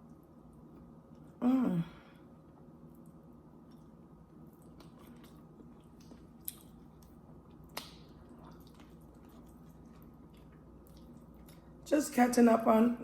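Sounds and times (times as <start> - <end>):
chewing food: 2.6 - 11.9
wet mouth clicks: 7.7 - 9.7.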